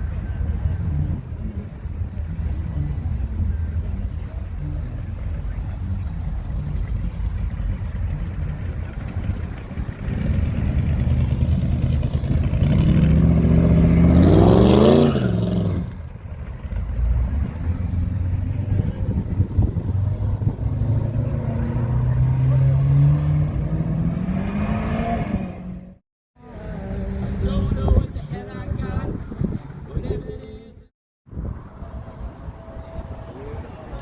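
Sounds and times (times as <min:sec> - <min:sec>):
car engine revving: 0:02.1 - 0:26.0.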